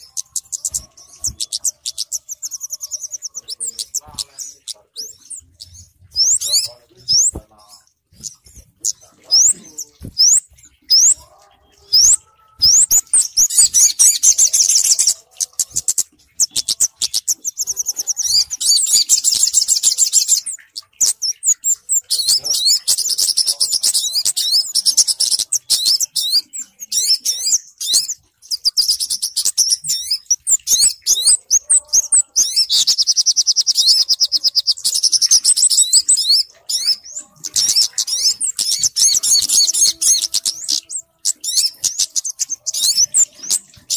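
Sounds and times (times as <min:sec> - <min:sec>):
songbirds chirping and trilling: 0:00.0 - 0:43.9.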